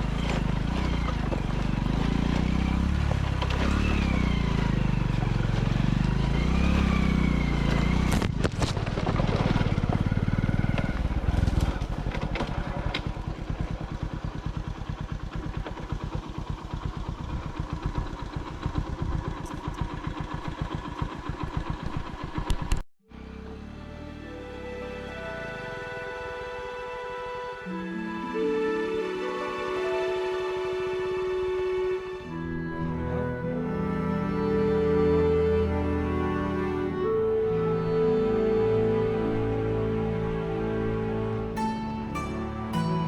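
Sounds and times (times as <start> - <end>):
motorcycle engine revving: 0.0 - 29.2.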